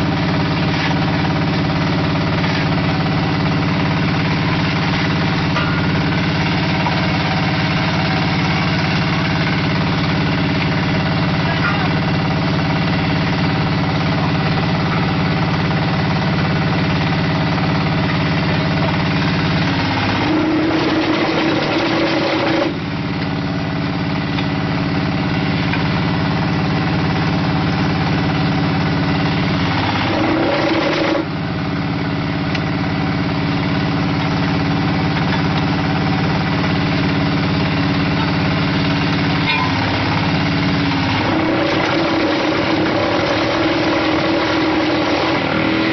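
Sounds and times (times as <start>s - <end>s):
small diesel engine running: 0.0s - 45.9s.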